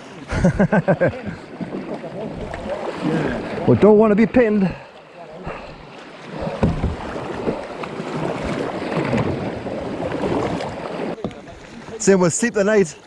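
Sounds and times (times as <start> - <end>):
river water rushing and splashing: 0.0 - 13.0
low thump: 6.4 - 7.2.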